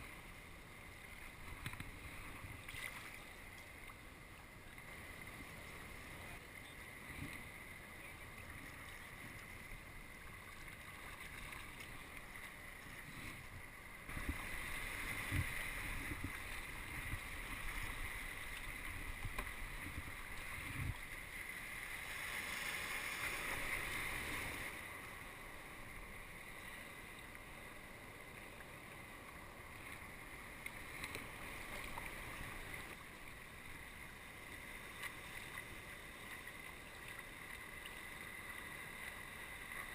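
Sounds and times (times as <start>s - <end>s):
wind on microphone: 13.3s - 21.2s.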